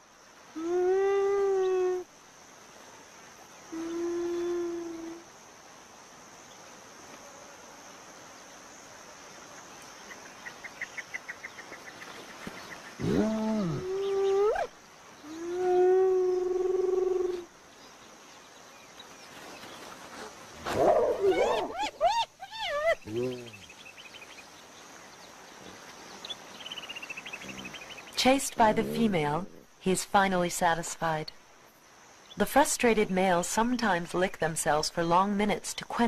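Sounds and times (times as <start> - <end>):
hyenas calling: 20.7 - 23.7, 27.4 - 29.7.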